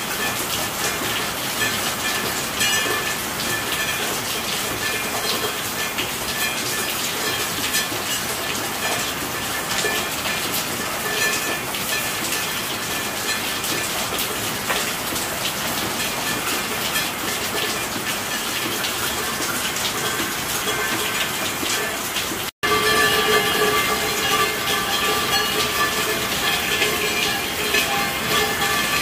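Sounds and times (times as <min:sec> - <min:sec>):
steady rainfall: 0:00.0 - 0:29.0.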